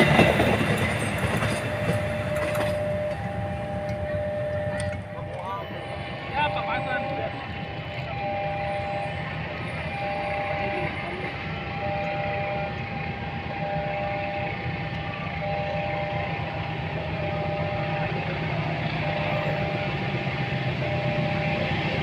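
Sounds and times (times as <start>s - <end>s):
level crossing alarm tone: 0.0s - 22.0s
passing traffic rumble: 0.0s - 22.0s.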